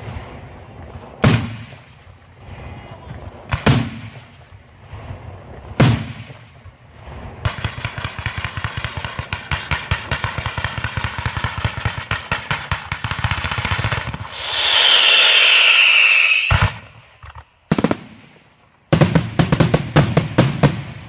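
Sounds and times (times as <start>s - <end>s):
rapid firework cracks: 0.0s - 2.5s, 3.2s - 21.0s
firework shell bursts: 7.5s - 18.0s.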